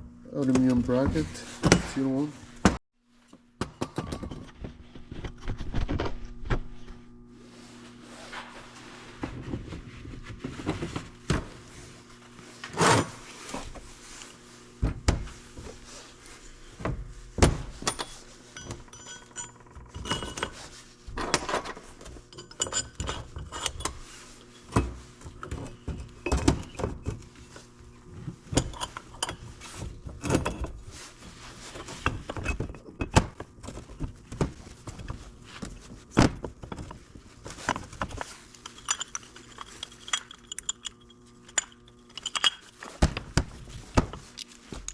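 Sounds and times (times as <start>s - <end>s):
metal tools clinking: 17.8s - 20.6s, 21.3s - 24.7s, 38.6s - 43.0s.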